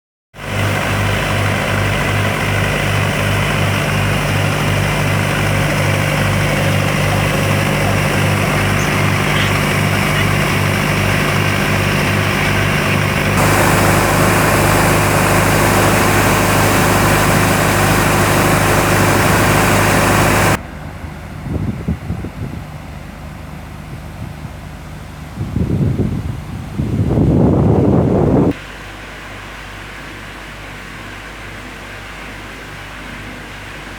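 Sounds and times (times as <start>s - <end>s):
shotcrete machine humming: 0.4s - 20.7s
hiss of sprayed concrete: 13.4s - 20.6s
wind on microphone: 21.4s - 22.8s, 25.3s - 28.6s.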